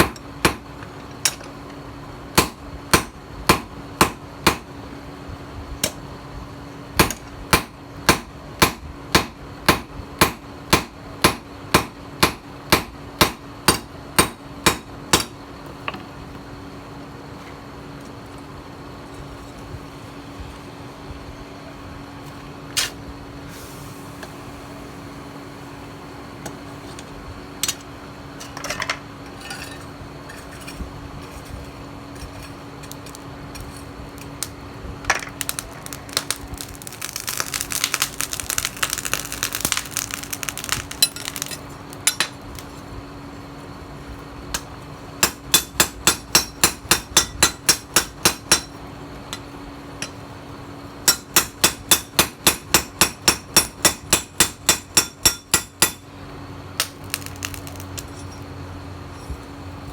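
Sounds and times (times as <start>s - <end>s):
hammer striking steel on anvil: 2.4s - 4.7s, 7.0s - 15.4s, 45.2s - 48.8s, 51.1s - 56.0s.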